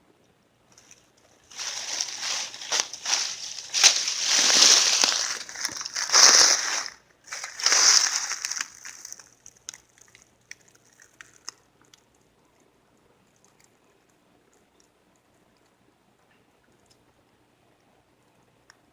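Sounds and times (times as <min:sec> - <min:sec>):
dry brush crunching and rustling: 0:00.8 - 0:09.3.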